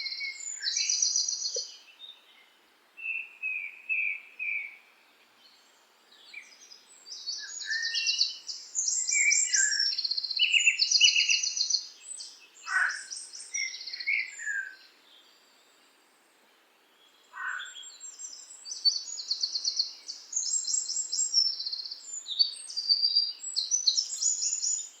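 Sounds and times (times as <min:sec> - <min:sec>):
songbird trilling and chirping: 0:00.0 - 0:02.1, 0:06.2 - 0:15.4, 0:17.0 - 0:25.0.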